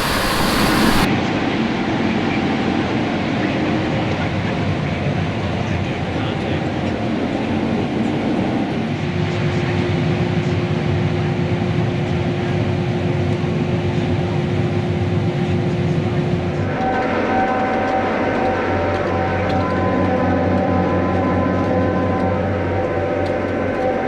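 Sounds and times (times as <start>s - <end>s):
heavy farm machinery drone: 0.0s - 1.1s
steady hum: 0.0s - 1.1s.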